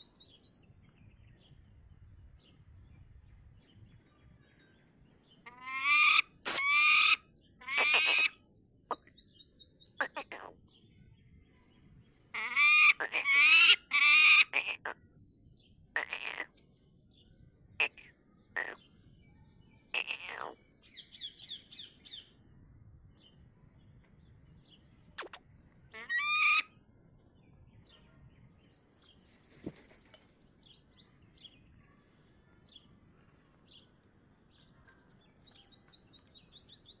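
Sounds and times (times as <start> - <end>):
birds calling sharply: 3.9 - 10.6, 12.4 - 15.0, 16.0 - 16.5, 17.8 - 18.9, 19.8 - 22.2, 24.6 - 25.4, 27.4 - 32.9
high repeated bird chirps: 5.8 - 10.5, 12.7 - 15.0, 16.0 - 16.5, 17.8 - 18.8, 19.8 - 22.0, 25.2 - 25.4.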